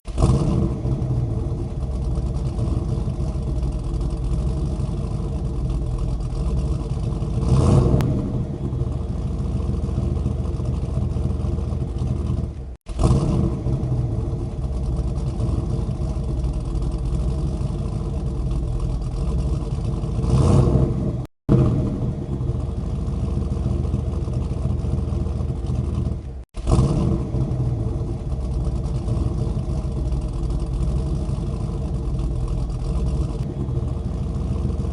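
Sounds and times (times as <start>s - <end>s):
engine running: 0.0s - 34.9s.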